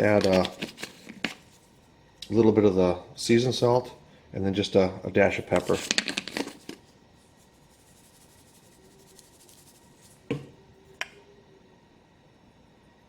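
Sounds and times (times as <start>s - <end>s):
seasoning shaker rattle: 5.6s - 10.5s.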